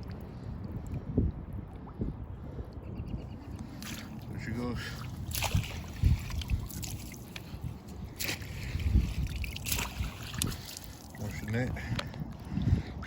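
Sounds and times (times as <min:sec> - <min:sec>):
wind rumble on microphone: 0:00.0 - 0:13.0
river water splashing: 0:03.7 - 0:11.7.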